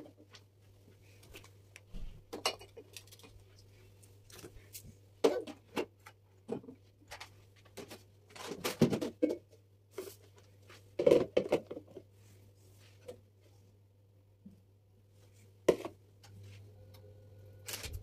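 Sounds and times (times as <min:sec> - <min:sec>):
containers knocking and rustling: 0:05.2 - 0:12.1, 0:15.7 - 0:16.0.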